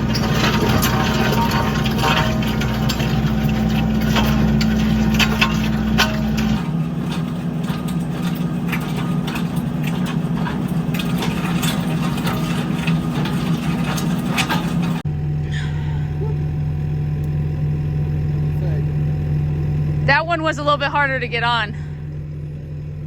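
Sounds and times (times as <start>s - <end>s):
knocks and clanks: 0.0s - 15.8s
skid steer engine running: 0.0s - 23.0s.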